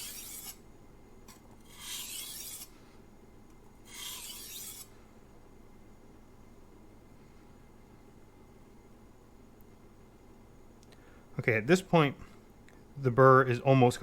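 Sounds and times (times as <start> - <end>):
knife scraping whetstone: 0.0 - 0.6, 1.3 - 2.7, 3.8 - 4.9.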